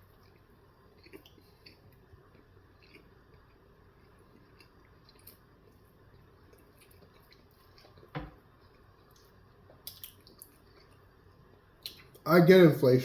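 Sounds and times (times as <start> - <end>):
wet mouth sounds of eating: 0.2 - 5.5, 8.7 - 11.0.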